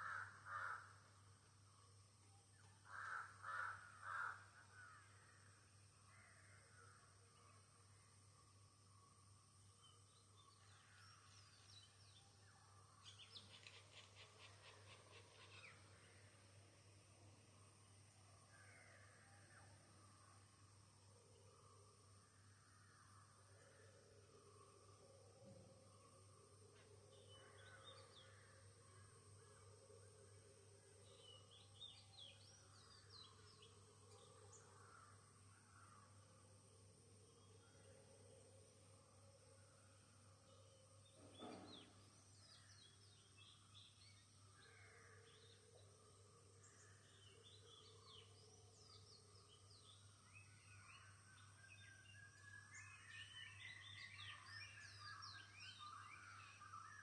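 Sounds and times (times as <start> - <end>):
songbird chirping: 0.0 - 57.0
birds chirping and twittering: 9.8 - 18.0, 41.0 - 45.6, 46.6 - 57.0.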